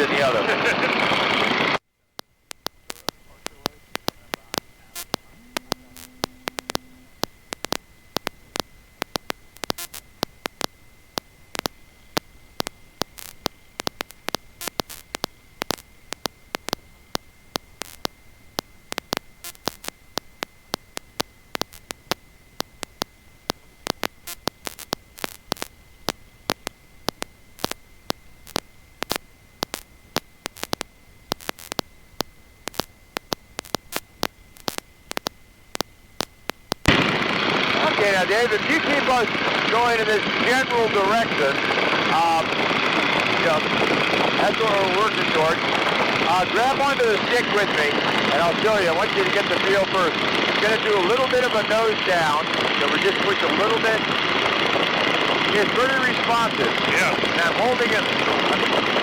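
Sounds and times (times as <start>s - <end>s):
high-pitched whine: 0.0s - 1.8s, 2.6s - 59.0s
crackling intercom static: 0.0s - 59.0s
short low hum: 2.7s - 15.3s.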